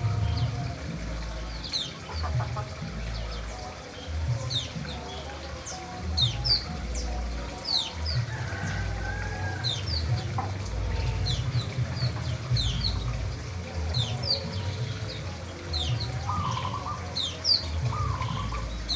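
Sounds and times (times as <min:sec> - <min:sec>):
low rumble: 0:00.0 - 0:01.7
birds chirping: 0:00.0 - 0:18.9.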